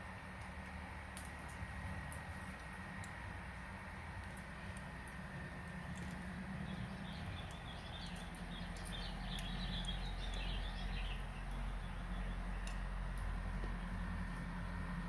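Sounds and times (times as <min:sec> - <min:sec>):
steady low hum: 0:00.0 - 0:15.0
bird twittering: 0:06.6 - 0:12.7.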